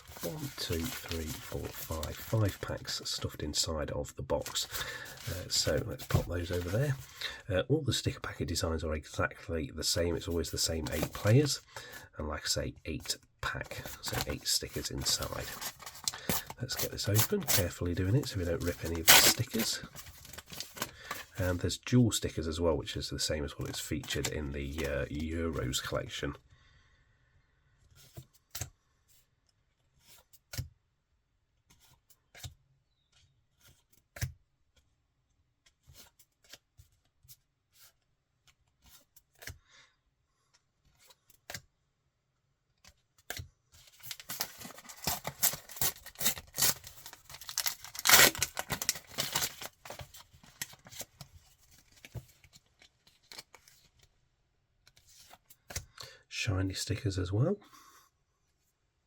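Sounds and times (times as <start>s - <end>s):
wrappers crinkling and tearing: 0.0s - 3.0s, 15.0s - 21.2s, 43.9s - 51.2s.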